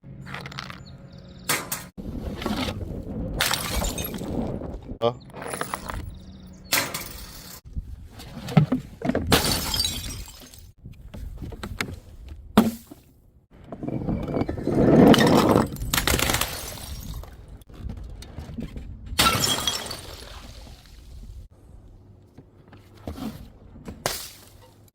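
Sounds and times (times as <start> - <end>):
glass bottles smashing: 3.4 - 4.3, 6.7 - 7.6, 9.3 - 10.7, 19.2 - 20.5.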